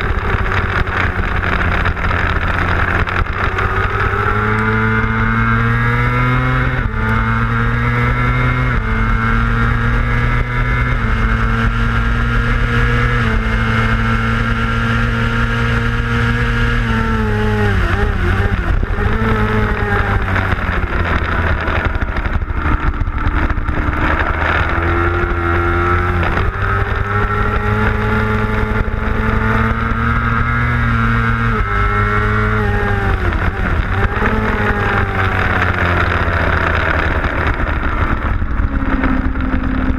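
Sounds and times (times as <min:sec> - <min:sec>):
racing motorcycle engine shifting gears: 0:00.0 - 0:39.9
wind rush: 0:00.0 - 0:39.9.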